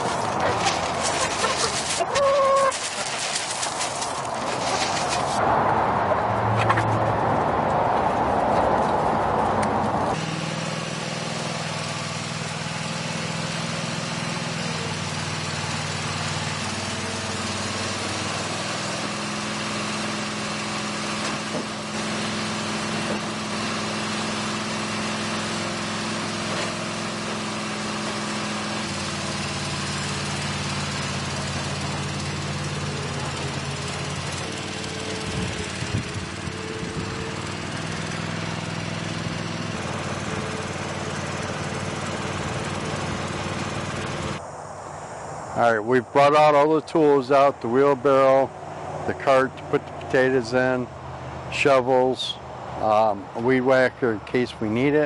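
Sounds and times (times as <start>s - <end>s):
small engine running: 0.0s - 5.4s, 10.1s - 44.5s.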